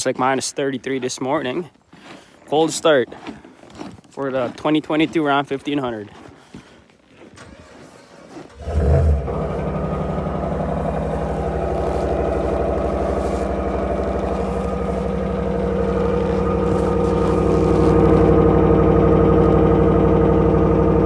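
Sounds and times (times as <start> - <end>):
engine cranking: 7.3 - 21.0
engine running steadily: 7.4 - 21.0.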